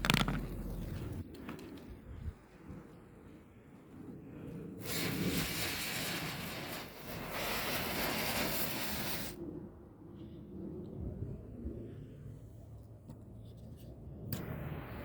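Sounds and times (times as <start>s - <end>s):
firework fountain hissing: 4.8s - 9.4s.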